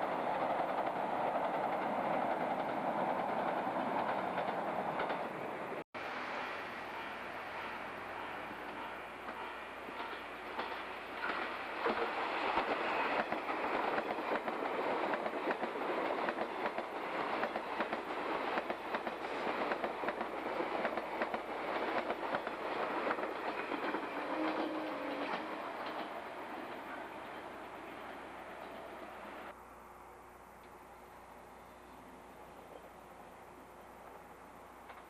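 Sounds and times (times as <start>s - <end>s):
electric train passing at speed: 0.0s - 35.0s.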